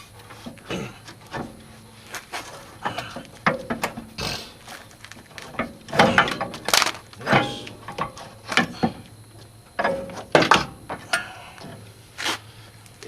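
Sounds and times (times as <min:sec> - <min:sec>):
axle shaft knocking and scraping: 0:00.0 - 0:12.5
sharp metal knocks: 0:02.8 - 0:04.2, 0:05.4 - 0:09.1, 0:09.7 - 0:11.8.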